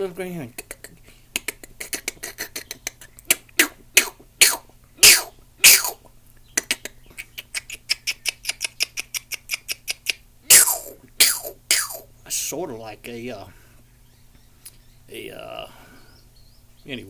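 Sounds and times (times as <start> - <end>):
man imitating bird calls: 0.0 - 12.1.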